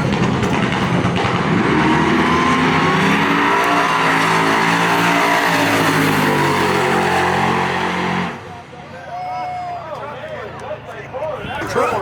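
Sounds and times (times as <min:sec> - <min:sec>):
drag car engine accelerating: 0:00.0 - 0:08.5.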